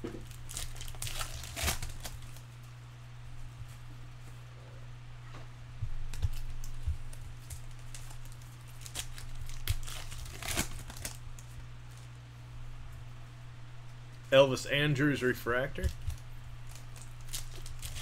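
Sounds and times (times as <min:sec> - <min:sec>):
foil wrapper crinkling and tearing: 0:00.0 - 0:02.6, 0:06.1 - 0:12.2, 0:15.8 - 0:18.0
low electrical hum: 0:00.0 - 0:18.0
cards rustling: 0:06.0 - 0:12.2, 0:15.4 - 0:18.0.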